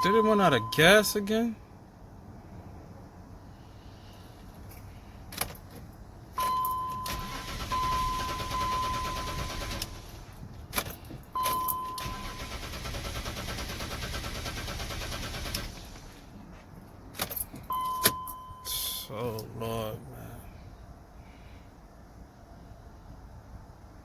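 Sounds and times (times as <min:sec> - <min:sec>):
car engine cranking: 0:05.3 - 0:16.4.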